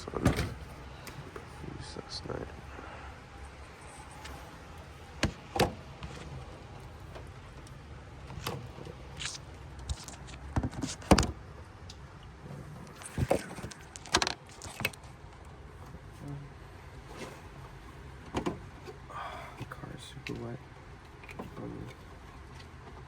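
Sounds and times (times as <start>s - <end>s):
knocks and clunks of car parts: 0.0s - 1.6s, 4.2s - 9.0s, 9.8s - 11.5s, 12.7s - 15.2s, 18.1s - 20.4s.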